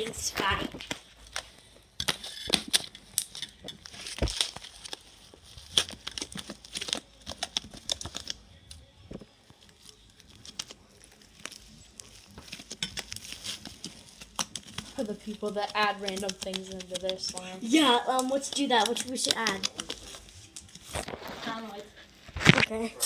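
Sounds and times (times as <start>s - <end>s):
slime being squished: 9.7s - 21.2s.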